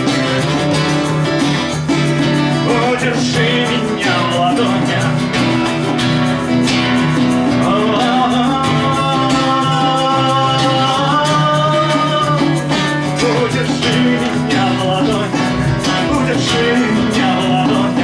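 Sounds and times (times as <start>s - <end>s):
acoustic guitar accompaniment: 0.0s - 18.0s
person singing long notes: 7.7s - 18.0s.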